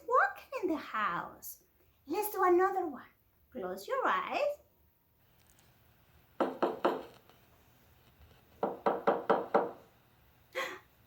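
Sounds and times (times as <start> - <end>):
knocking on a door: 6.4 - 7.1, 8.6 - 9.8.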